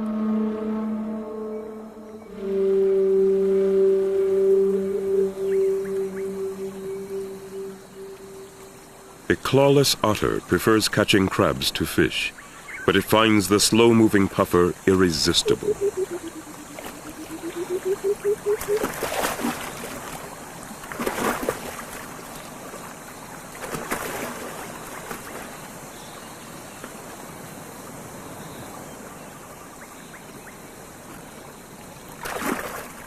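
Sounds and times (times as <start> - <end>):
water splashing: 12.9 - 26.0, 31.1 - 33.0.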